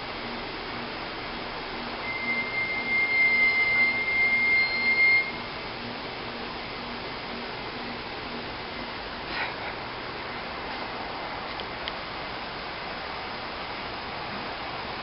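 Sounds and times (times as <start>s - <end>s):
constant hiss: 0.0s - 15.0s
steady high-pitched tone: 1.8s - 5.7s.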